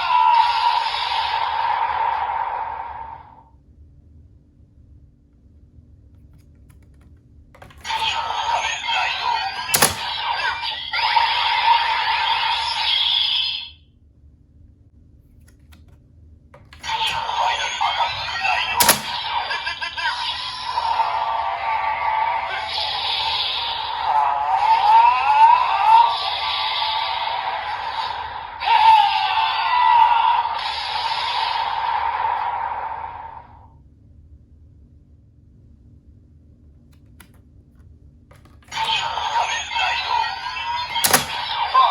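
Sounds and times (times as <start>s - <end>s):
announcement voice: 7.8s - 11.4s, 16.8s - 21.8s, 38.7s - 41.9s.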